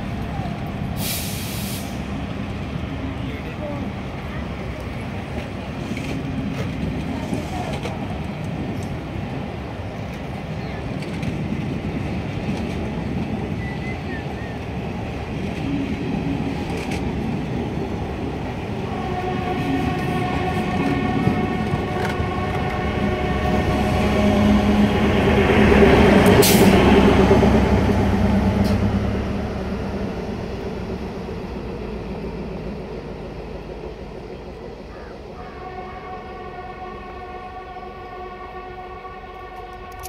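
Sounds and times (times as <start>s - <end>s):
train wheels rumbling on rails: 0.0s - 40.0s
diesel engine hum: 14.1s - 39.2s.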